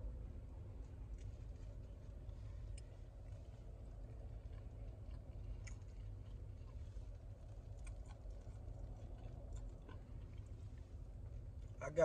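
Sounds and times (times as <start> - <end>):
chewing mouth sounds: 2.3 - 11.8.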